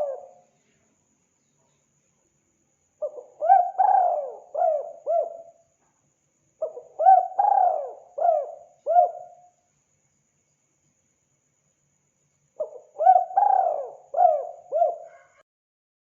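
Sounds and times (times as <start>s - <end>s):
dove cooing: 0.0s - 0.4s, 3.0s - 5.6s, 6.6s - 9.4s, 12.6s - 15.4s.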